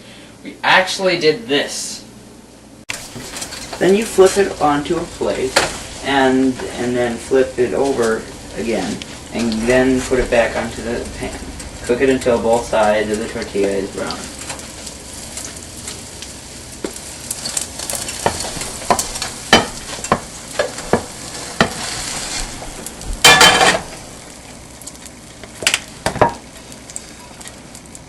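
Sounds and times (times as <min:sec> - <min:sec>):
food sizzling in oil: 0:02.9 - 0:28.0
utensil scraping a pan: 0:17.3 - 0:23.9.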